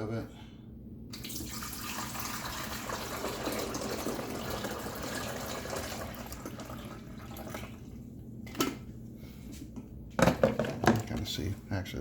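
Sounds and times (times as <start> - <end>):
water pouring into reservoir: 1.1 - 7.9.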